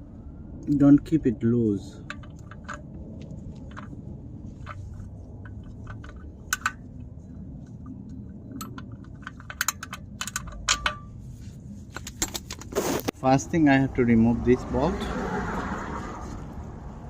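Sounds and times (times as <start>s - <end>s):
low background rumble: 0.0s - 17.0s
hand tools clicking and clinking: 4.6s - 6.8s, 8.5s - 11.1s.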